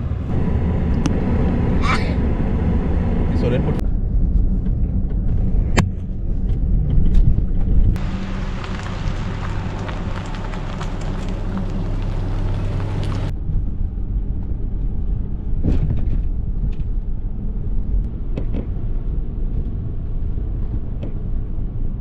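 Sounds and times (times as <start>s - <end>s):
low rumble: 0.0s - 22.0s
steady rain hiss: 8.0s - 13.3s.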